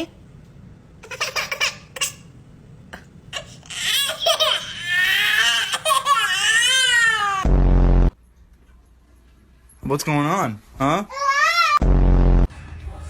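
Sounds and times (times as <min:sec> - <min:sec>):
loud low buzz: 0:07.3 - 0:08.2, 0:11.8 - 0:13.0.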